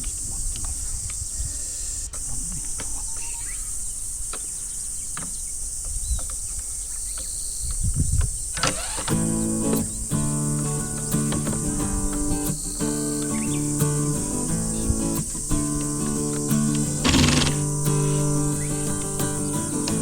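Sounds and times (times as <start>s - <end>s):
insects trilling: 0.0s - 20.0s
music: 9.1s - 20.0s.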